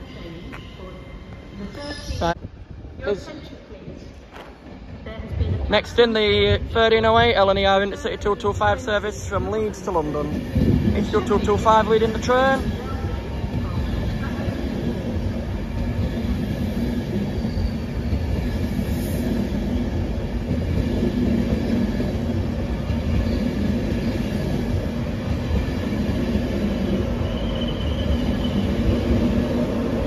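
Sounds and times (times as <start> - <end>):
train wheels rumbling on rail: 3.8 - 30.0
faint high squeal: 17.2 - 18.2, 27.1 - 28.8.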